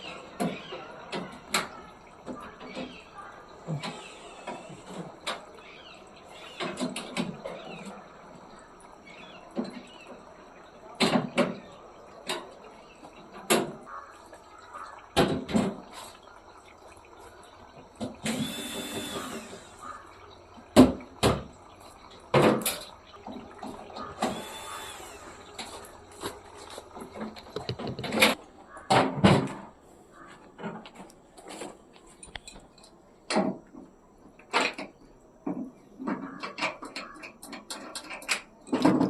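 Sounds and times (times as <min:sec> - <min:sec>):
small electric motor running: 0:18.2 - 0:20.0, 0:24.0 - 0:26.0
sharp knocks and clatters: 0:22.3 - 0:29.8, 0:34.5 - 0:39.0.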